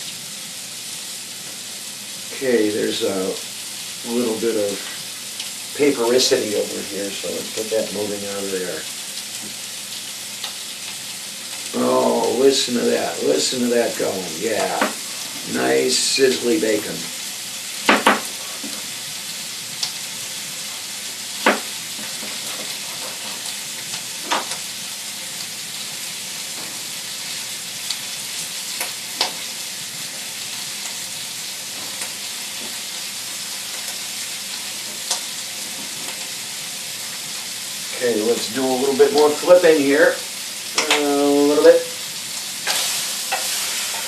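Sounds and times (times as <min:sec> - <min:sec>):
bacon sizzling in a pan: 0:00.0 - 0:44.0.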